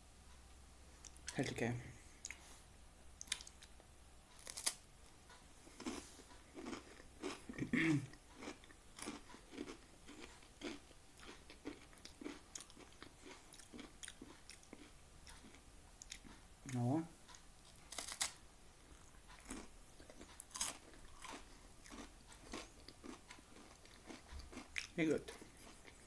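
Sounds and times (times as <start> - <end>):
crispbread crunching: 4.3 - 4.8, 5.7 - 16.3, 17.6 - 18.4, 19.0 - 26.0.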